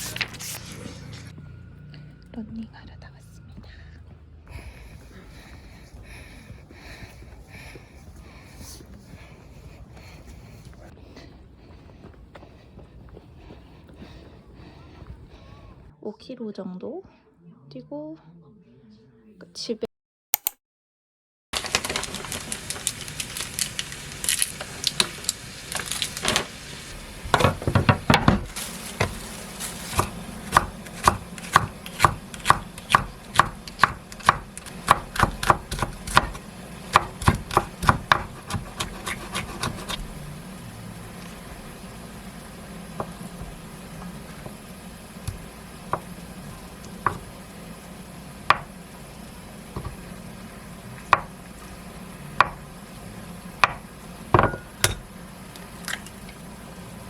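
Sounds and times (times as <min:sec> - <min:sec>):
knife chopping on wooden board: 0:27.3 - 0:29.2, 0:29.8 - 0:40.0, 0:46.9 - 0:47.3, 0:48.5 - 0:48.7, 0:51.1 - 0:51.4, 0:52.4 - 0:52.6, 0:53.6 - 0:53.8.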